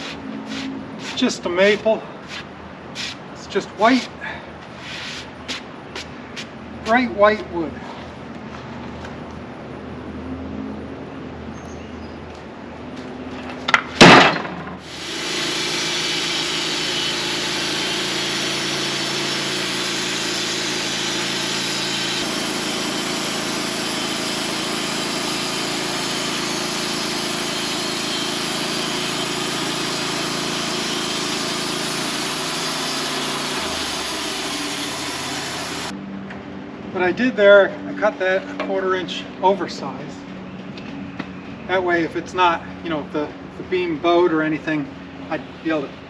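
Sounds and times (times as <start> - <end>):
sawmill blade cutting log: 0.0 - 2.4, 14.0 - 35.9.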